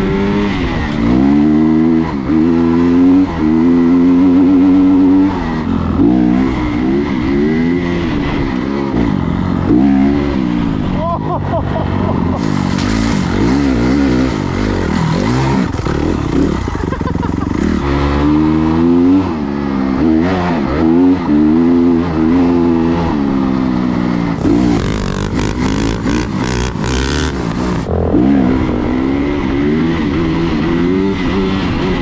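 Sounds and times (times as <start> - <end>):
dirt bike engine revving: 0.0 - 32.0.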